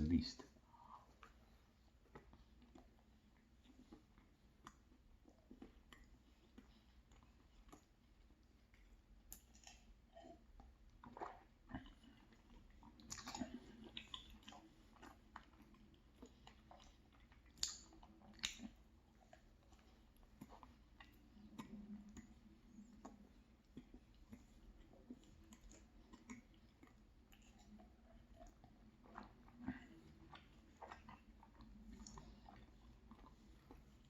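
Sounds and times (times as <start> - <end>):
person chewing: 0.6 - 34.0
mouth smacks: 17.3 - 18.8.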